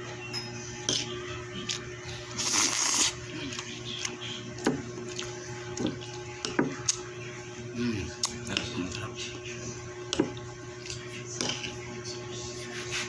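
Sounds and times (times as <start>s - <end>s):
steady low hum: 0.0s - 13.0s
person slurping noodles: 2.2s - 3.2s.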